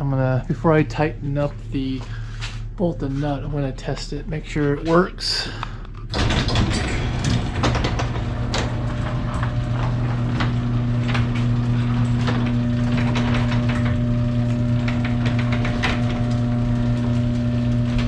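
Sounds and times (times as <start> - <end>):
garage door opener motor humming: 0.0 - 18.0
garage door clicking and rattling: 4.5 - 18.0.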